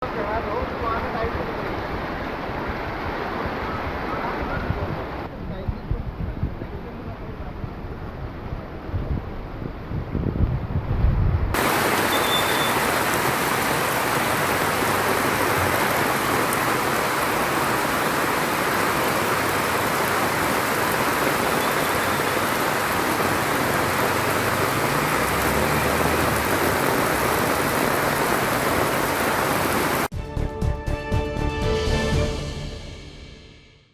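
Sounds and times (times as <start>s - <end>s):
heavy rain falling: 0.0s - 5.4s, 11.5s - 30.1s
music: 30.1s - 33.9s.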